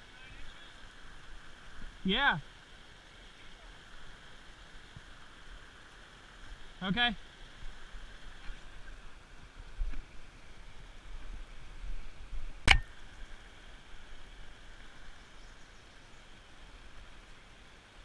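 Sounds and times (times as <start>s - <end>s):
faint steady hiss: 0.0s - 18.0s
sharp knock: 12.7s - 12.9s.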